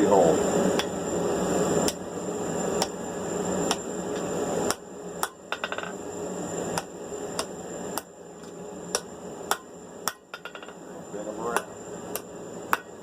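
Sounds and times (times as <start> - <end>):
hammer striking steel on anvil: 4.7 - 5.9, 8.9 - 10.8, 11.5 - 13.0.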